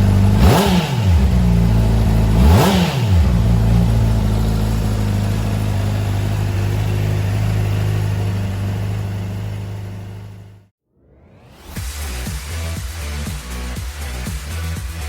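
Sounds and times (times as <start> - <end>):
motorcycle engine blip and idle: 0.0 - 10.6.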